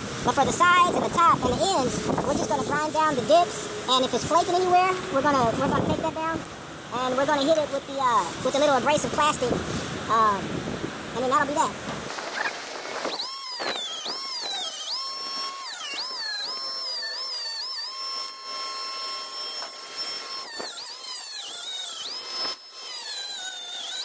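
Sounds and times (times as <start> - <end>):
power grinder grinding metal: 1.4 - 6.5, 12.1 - 24.0.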